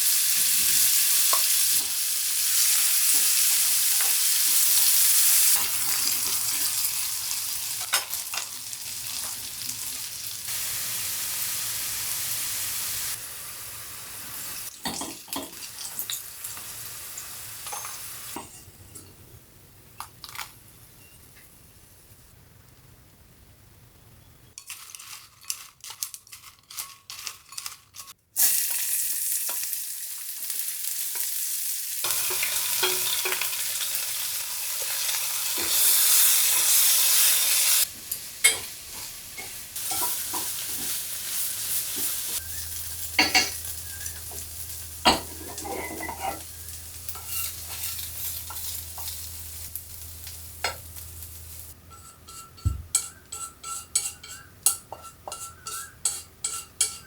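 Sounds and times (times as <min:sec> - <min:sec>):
food sizzling in hot oil: 0:00.0 - 0:18.6, 0:24.6 - 0:57.0
spatula scraping in pan: 0:45.1 - 0:57.0
utensil tapping pan: 0:51.9 - 0:57.0.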